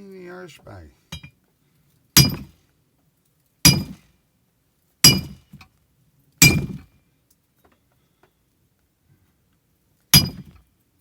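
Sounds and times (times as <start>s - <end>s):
hammer striking steel axe head: 2.2s - 2.5s, 3.7s - 4.0s, 5.1s - 5.4s, 6.4s - 6.8s, 10.2s - 10.5s.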